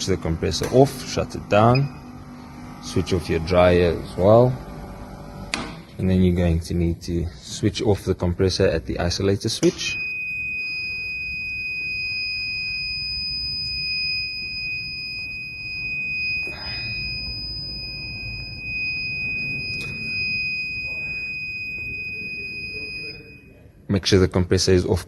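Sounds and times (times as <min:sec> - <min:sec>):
alarm buzzer tone: 0:00.0 - 0:05.5, 0:09.8 - 0:23.7
machinery rumble: 0:00.0 - 0:05.6.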